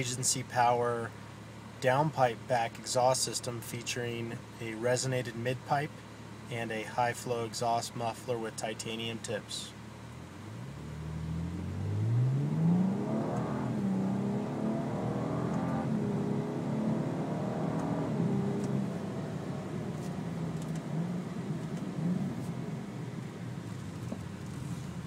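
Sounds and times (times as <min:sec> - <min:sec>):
car engine accelerating: 0:10.1 - 0:25.0.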